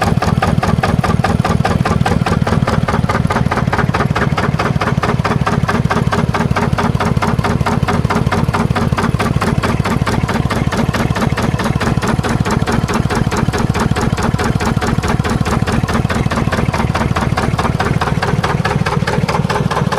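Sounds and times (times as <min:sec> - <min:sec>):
diesel engine idling: 0:00.0 - 0:19.9.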